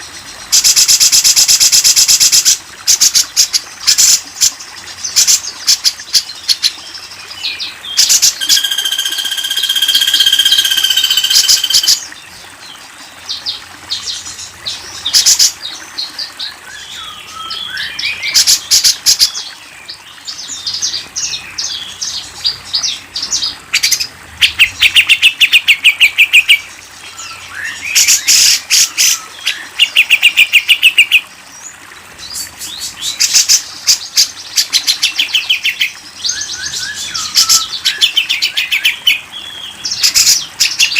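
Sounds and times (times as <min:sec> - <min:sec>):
fast rattling bird trills: 0:08.0 - 0:12.0
long held bird whistle: 0:08.4 - 0:12.0
whistled bird phrases: 0:36.3 - 0:39.0.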